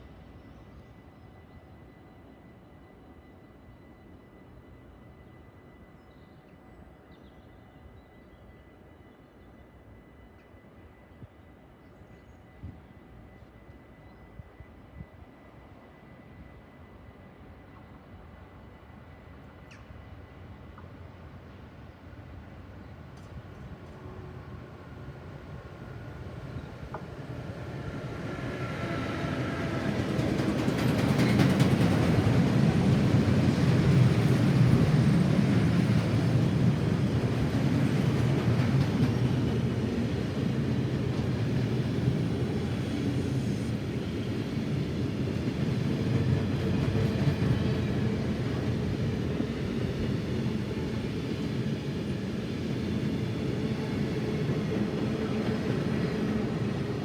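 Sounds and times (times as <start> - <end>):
small click: 19.7 - 19.9.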